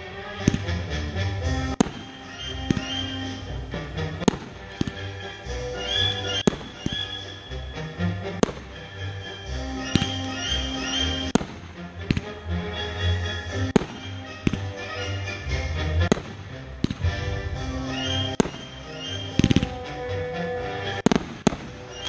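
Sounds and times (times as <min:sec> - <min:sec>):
fireworks bangs: 0:00.2 - 0:07.6, 0:08.2 - 0:19.8, 0:20.8 - 0:22.0
music with low beat: 0:16.0 - 0:19.8.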